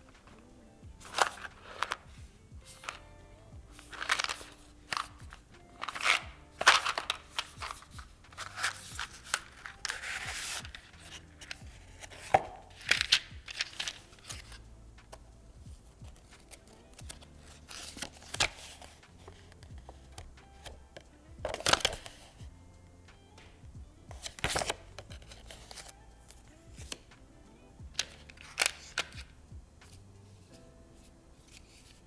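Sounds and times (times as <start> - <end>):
packaging rustling and scraping: 0.0 - 3.1, 3.7 - 15.2, 16.1 - 20.8, 21.5 - 22.4, 24.2 - 27.0, 28.0 - 32.0
packaging tearing: 1.0 - 2.1, 3.8 - 14.6, 28.0 - 29.2.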